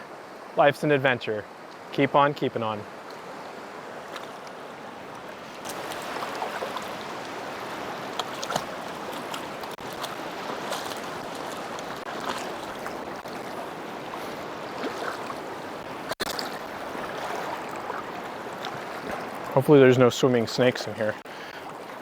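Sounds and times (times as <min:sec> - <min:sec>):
small water splashes: 0:02.9 - 0:19.6.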